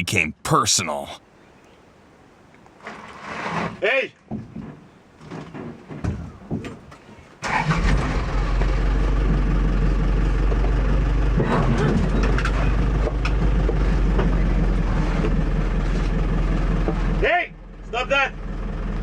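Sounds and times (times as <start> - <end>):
vehicle engine starting and rumbling: 7.4 - 19.0.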